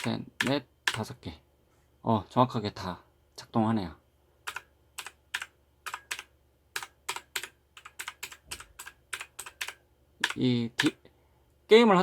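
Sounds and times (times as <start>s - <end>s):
mechanical keyboard key clacks: 4.5s - 11.0s.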